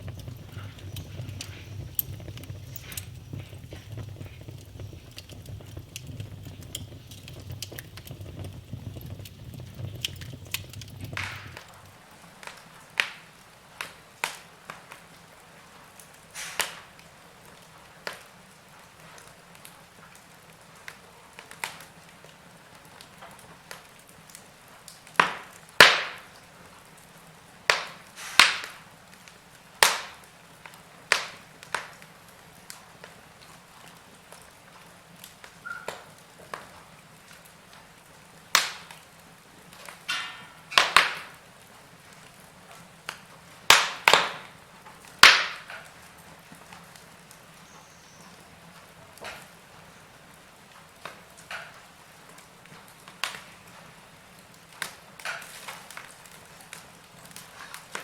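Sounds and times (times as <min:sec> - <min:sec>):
low rumble of flames: 0:00.0 - 0:12.2
wood fire crackling and popping: 0:00.0 - 0:58.0.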